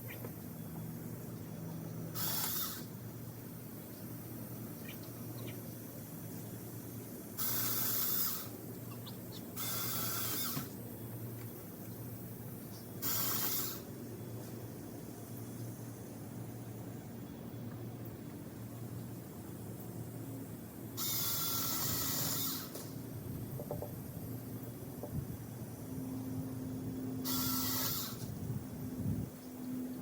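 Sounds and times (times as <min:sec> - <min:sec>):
electric chainsaw bursts: 0:02.1 - 0:02.9, 0:07.4 - 0:08.6, 0:09.6 - 0:10.7, 0:13.0 - 0:13.9, 0:21.0 - 0:22.8, 0:27.2 - 0:28.3.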